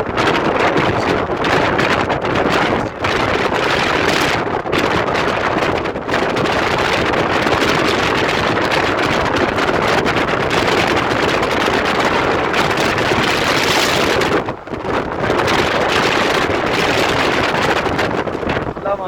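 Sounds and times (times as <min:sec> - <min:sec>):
road noise: 0:00.0 - 0:19.0
wind rushing over microphone: 0:00.0 - 0:19.0.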